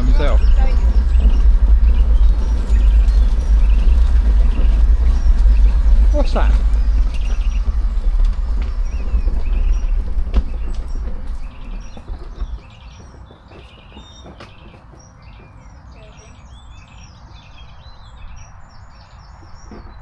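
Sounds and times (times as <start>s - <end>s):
low rumble: 0.0s - 12.9s
small birds chirping and singing: 0.0s - 20.0s.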